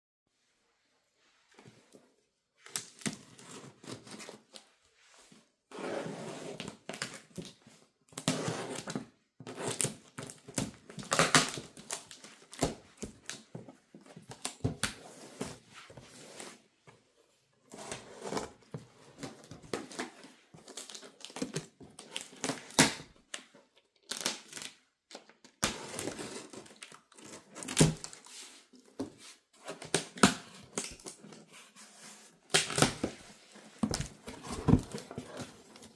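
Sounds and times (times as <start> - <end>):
plastic and cardboard crinkling: 17.7 - 35.9.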